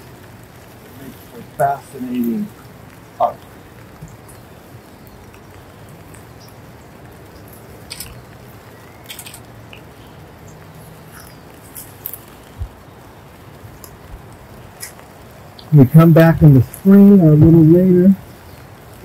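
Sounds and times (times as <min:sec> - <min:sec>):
light rain falling: 0:00.0 - 0:19.0
soft raindrop taps: 0:00.0 - 0:19.0.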